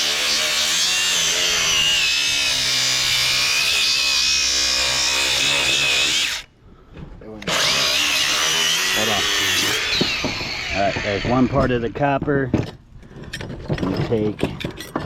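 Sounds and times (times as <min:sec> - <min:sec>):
power cutting tool whining: 0:00.0 - 0:06.5, 0:07.5 - 0:11.8.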